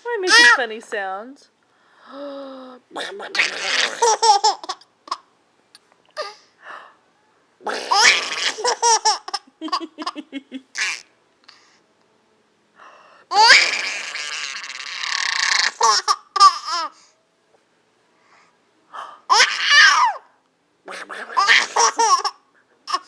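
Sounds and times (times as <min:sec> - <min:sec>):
baby laughing: 0:03.3 - 0:05.3, 0:07.7 - 0:11.1, 0:13.3 - 0:17.0, 0:19.3 - 0:20.2, 0:21.3 - 0:23.0.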